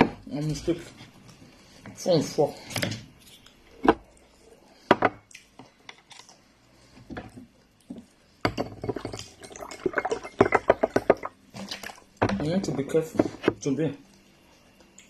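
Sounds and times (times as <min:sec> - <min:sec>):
dish clatter: 0:08.5 - 0:11.3
dish knocking: 0:09.9 - 0:11.3.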